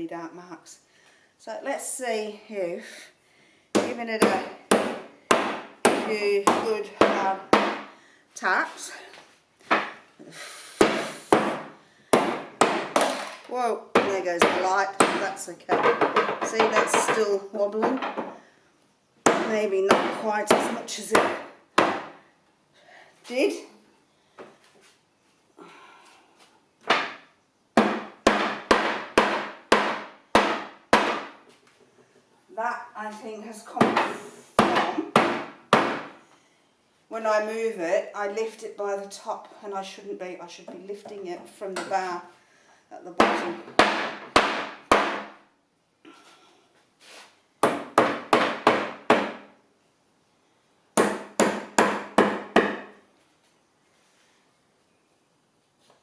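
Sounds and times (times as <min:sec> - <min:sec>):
soft rustle: 0:46.2 - 0:47.4, 0:53.1 - 0:54.9.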